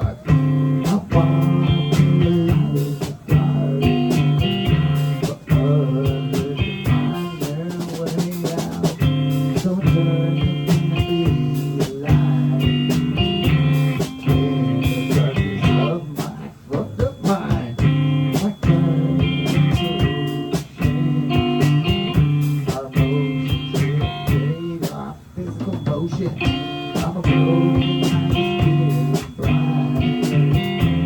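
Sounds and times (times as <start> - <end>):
bass guitar: 0.0 - 31.0
electric guitar chords: 0.0 - 31.0
drum hits: 25.7 - 31.0.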